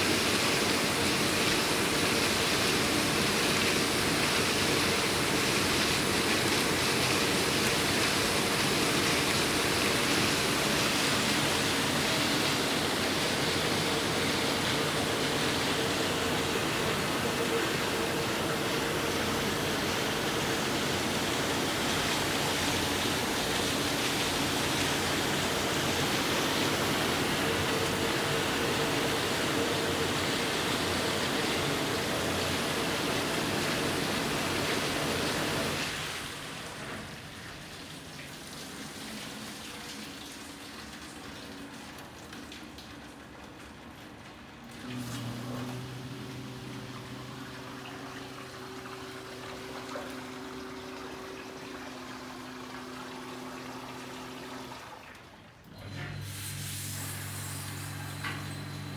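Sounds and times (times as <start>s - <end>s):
dishwasher water spraying: 0.0s - 36.6s, 44.8s - 55.3s, 56.2s - 58.9s
low machine hum: 44.8s - 58.9s.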